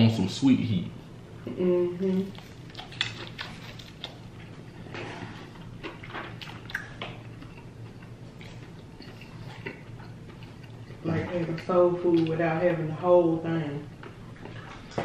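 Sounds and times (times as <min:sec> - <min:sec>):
low steady hum: 0:00.0 - 0:15.0
chewing and mouth smacks: 0:02.2 - 0:12.4, 0:13.9 - 0:15.0.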